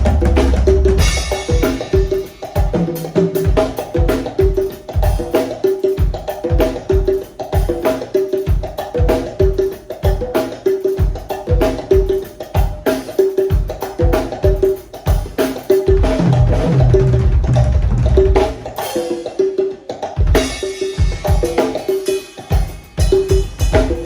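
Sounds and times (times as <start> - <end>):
deep bass drum beats: 0.0 - 2.7, 15.9 - 18.7
congas playing: 0.0 - 24.0
low rolling drum rumble: 16.2 - 18.4.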